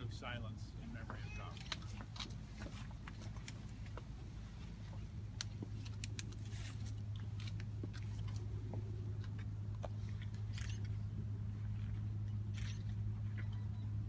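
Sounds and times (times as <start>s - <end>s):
steady low hum: 0.0s - 14.0s
clicks and rustles of people shifting: 0.9s - 11.0s.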